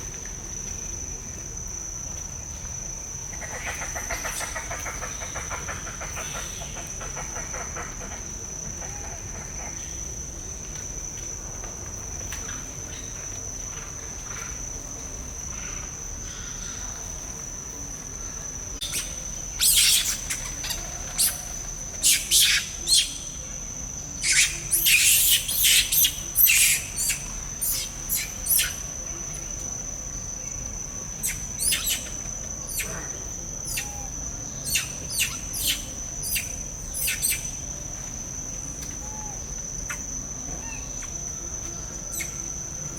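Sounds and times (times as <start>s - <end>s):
sharp chirping calls: 18.8s - 21.4s, 22.0s - 23.2s, 24.2s - 28.8s, 31.2s - 32.1s, 33.7s - 37.6s
high-pitched insect drone: 18.8s - 42.9s.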